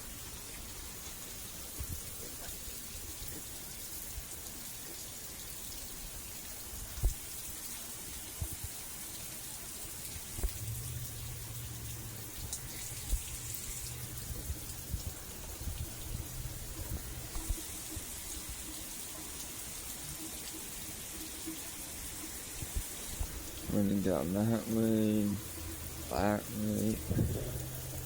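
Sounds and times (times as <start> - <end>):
steady rain falling: 0.0 - 28.0
heavy raindrops thudding: 10.2 - 18.6
low steady hum: 10.4 - 18.6, 22.7 - 28.0.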